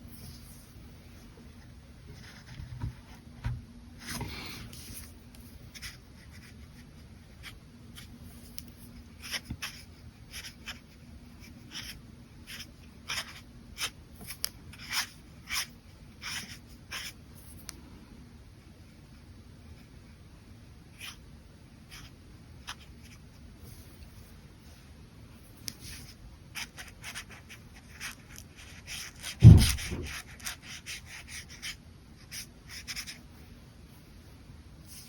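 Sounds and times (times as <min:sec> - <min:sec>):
faint steady hum: 0:00.0 - 0:35.0
brush pen scratching on paper: 0:25.7 - 0:33.2.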